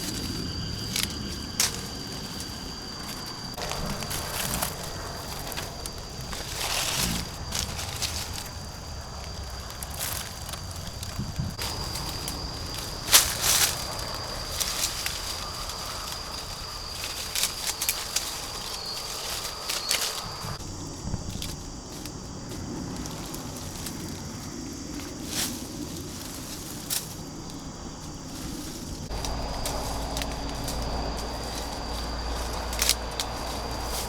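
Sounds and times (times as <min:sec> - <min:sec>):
sharp snaps and crackles: 0:00.0 - 0:20.6, 0:28.3 - 0:34.0.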